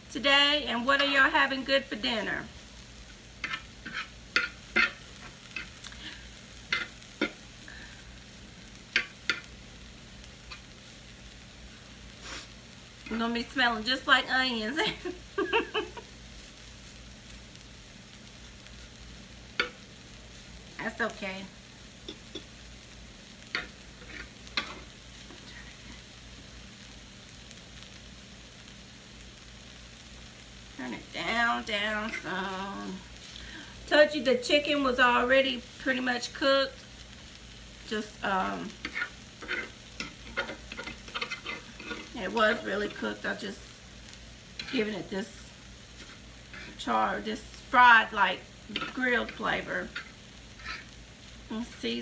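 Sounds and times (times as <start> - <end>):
food sizzling in a pan: 0.0 - 52.0
utensil scraping a pan: 3.0 - 7.5, 19.6 - 19.8, 23.5 - 24.9, 31.4 - 32.7, 37.9 - 43.6, 44.5 - 45.3, 45.9 - 51.0.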